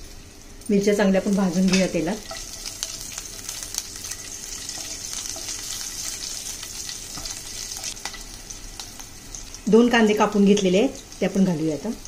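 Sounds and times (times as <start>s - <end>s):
chillies sizzling in hot oil: 0.0s - 12.0s
spatula stirring: 1.4s - 8.2s.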